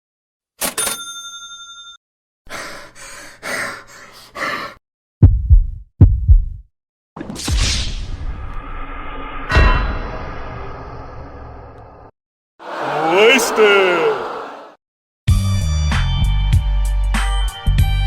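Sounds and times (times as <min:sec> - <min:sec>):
heavy low double thumps: 0:05.2 - 0:06.6.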